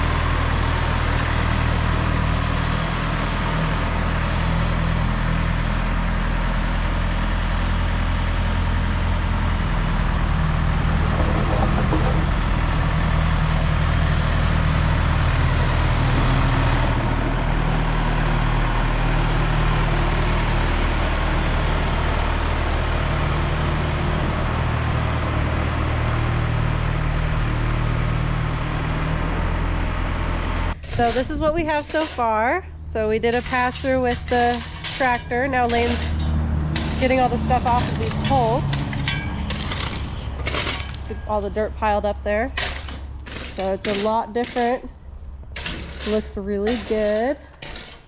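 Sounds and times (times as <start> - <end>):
tractor engine running: 0.0 - 48.0.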